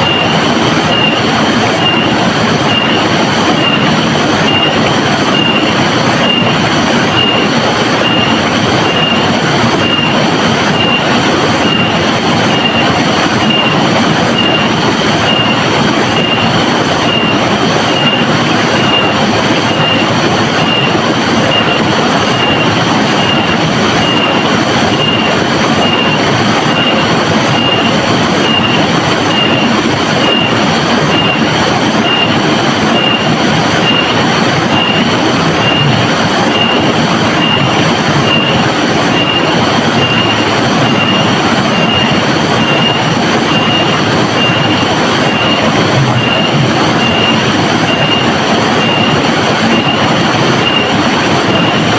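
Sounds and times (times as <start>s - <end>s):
pulsing high tone: 0.0s - 51.9s
river water rushing: 0.0s - 51.9s.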